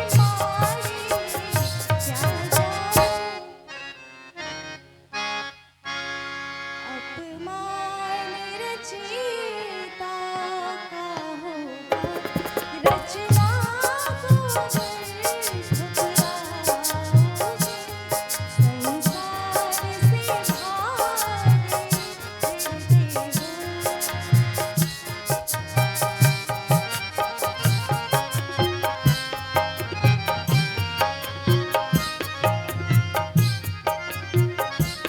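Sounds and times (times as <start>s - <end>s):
tabla and dholak beat: 0.0s - 3.3s, 11.9s - 35.0s
woman singing: 0.0s - 3.7s, 6.9s - 24.8s
harmonium melody: 0.0s - 35.0s.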